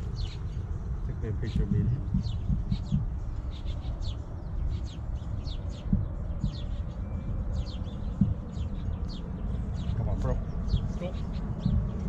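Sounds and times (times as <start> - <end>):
low rumble: 0.0 - 12.0
small bird chirping: 0.0 - 12.0.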